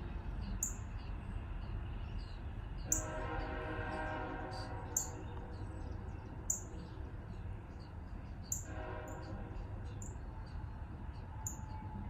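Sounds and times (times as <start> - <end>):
low outdoor rumble: 0.0 - 12.0
small birds chirping: 0.1 - 3.1, 4.9 - 8.7.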